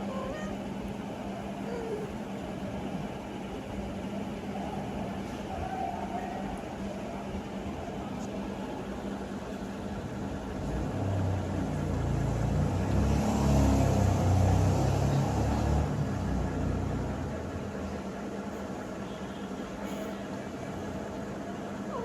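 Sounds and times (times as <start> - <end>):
vehicle passing by: 10.5 - 17.8.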